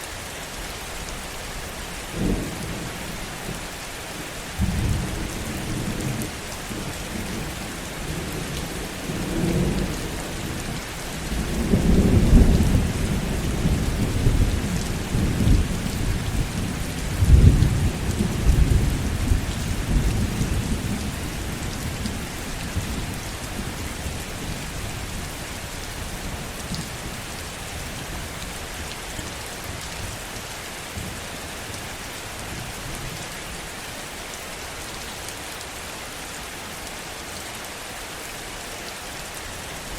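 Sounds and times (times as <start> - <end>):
heavy rain hissing: 0.0 - 39.9
rolling thunder: 11.2 - 25.3.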